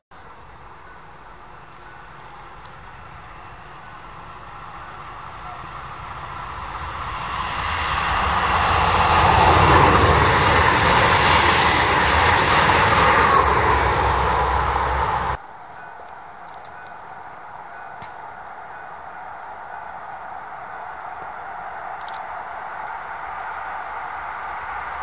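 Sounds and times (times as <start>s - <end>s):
train wheels rumbling on rails: 0.5s - 15.4s.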